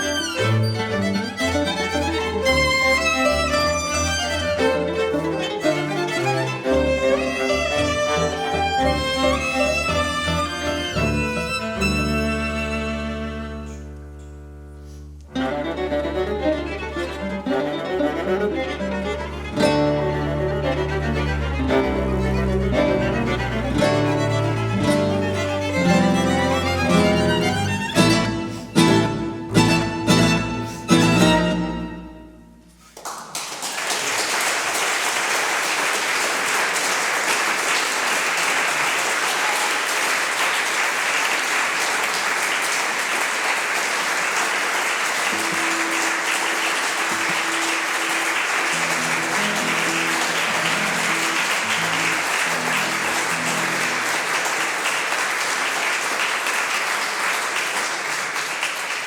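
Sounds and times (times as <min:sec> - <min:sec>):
audience applause: 0:00.0 - 0:13.8, 0:15.7 - 0:31.6, 0:32.8 - 0:59.0.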